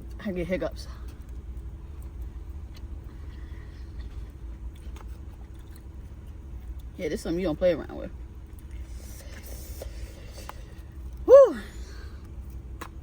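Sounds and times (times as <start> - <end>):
steady low rumble: 0.0 - 13.0
person chewing food: 1.0 - 7.0.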